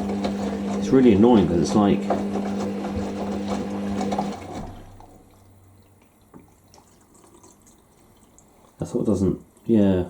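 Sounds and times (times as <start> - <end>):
washing machine humming: 0.0 - 9.7
water trickling in drum: 4.9 - 9.7.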